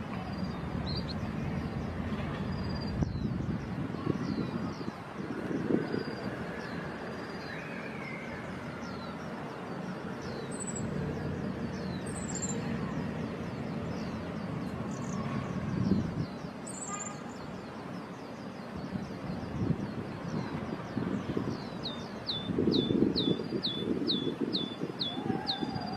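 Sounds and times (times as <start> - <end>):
steady low rumble: 0.0 - 7.3
small birds calling: 0.0 - 25.9.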